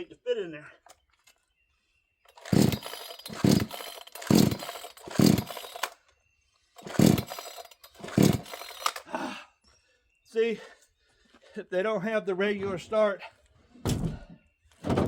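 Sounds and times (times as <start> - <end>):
chainsaw engine turning over: 2.3 - 6.1, 6.8 - 9.1
chainsaw recoil cord pulls: 2.3 - 6.2, 6.8 - 9.1.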